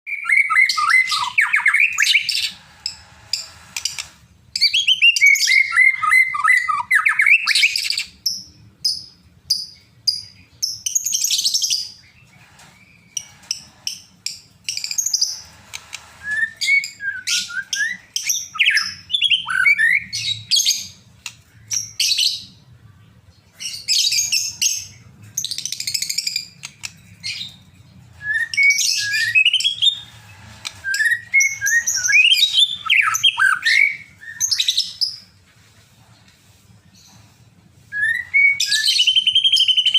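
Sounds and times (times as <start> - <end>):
songbird singing varied song: 0.1 - 13.4, 16.3 - 22.6, 30.8 - 35.4, 37.9 - 39.9.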